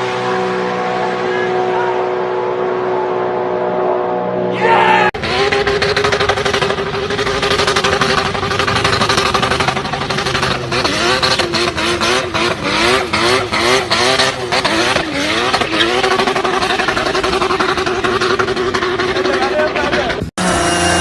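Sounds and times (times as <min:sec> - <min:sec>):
car engine idling and revving: 0:00.0 - 0:04.5, 0:05.1 - 0:21.0
exhaust cracks: 0:05.2 - 0:21.0.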